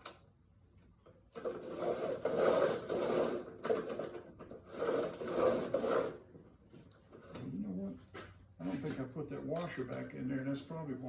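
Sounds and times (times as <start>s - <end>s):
lawn mower wheel rubbing and grinding: 1.4s - 6.2s.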